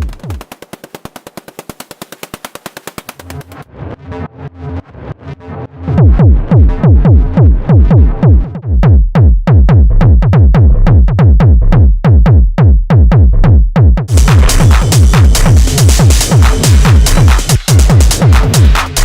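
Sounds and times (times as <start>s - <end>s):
drum machine kicks: 0.0s - 0.5s, 6.0s - 19.0s
hissing hi-hat: 14.1s - 19.0s.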